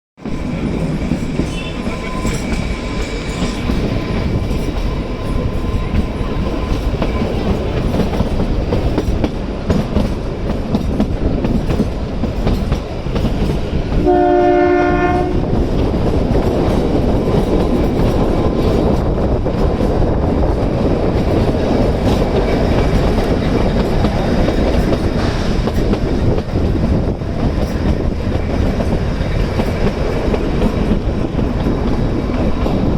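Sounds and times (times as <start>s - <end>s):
faint high whine: 0.2s - 7.9s
train rumbling: 0.2s - 32.9s
train horn: 0.7s - 8.1s, 14.0s - 15.6s.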